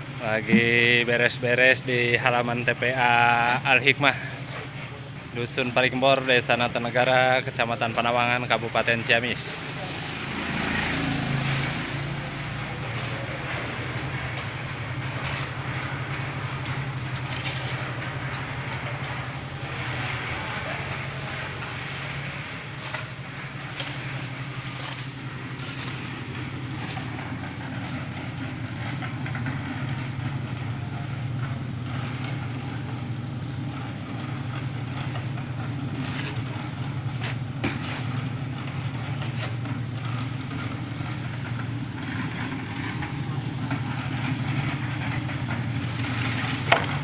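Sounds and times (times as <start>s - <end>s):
small engine droning: 0.0s - 47.0s.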